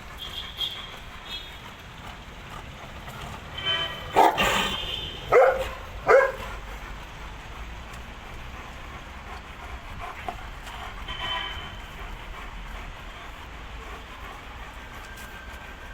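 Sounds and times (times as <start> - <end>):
dog barking: 3.8 - 6.7.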